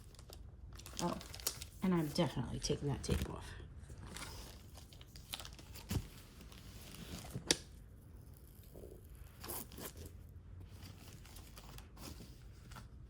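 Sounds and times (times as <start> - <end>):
plastic crinkling: 0.0 - 7.6.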